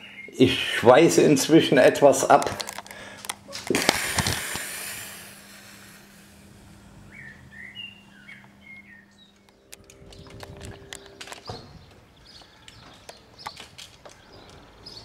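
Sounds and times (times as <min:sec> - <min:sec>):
faint steady hum: 0:00.0 - 0:15.0
small bird chirping: 0:07.1 - 0:15.0.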